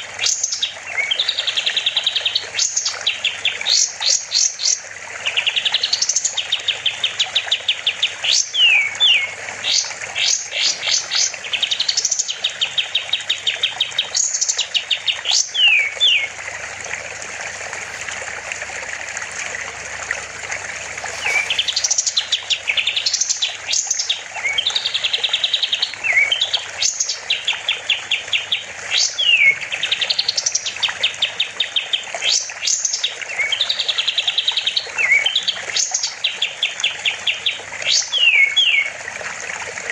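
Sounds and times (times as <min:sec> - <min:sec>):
songbird trilling and whistling: 0:08.2 - 0:16.3, 0:21.1 - 0:27.7, 0:28.4 - 0:30.7, 0:31.3 - 0:38.9.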